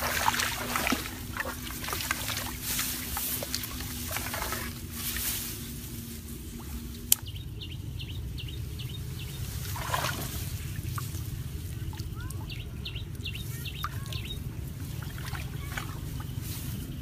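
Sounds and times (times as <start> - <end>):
watery splash: 0.0 - 4.8, 9.6 - 11.1
steady low rumble: 0.0 - 17.0
small bird chirping: 11.7 - 14.5.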